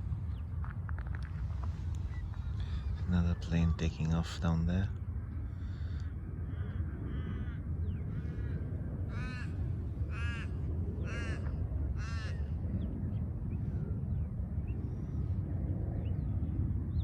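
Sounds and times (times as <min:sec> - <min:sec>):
low steady rumble: 0:00.0 - 0:17.0
crow cawing: 0:05.5 - 0:12.5.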